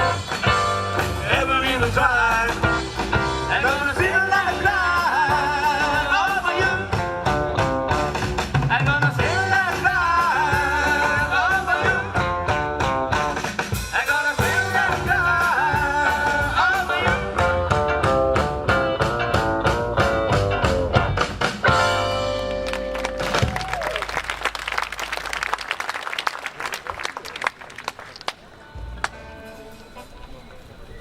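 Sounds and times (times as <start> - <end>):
rock and roll band playing: 0.0 - 24.7
person singing with vibrato: 3.4 - 7.1, 8.7 - 12.3, 13.9 - 17.4.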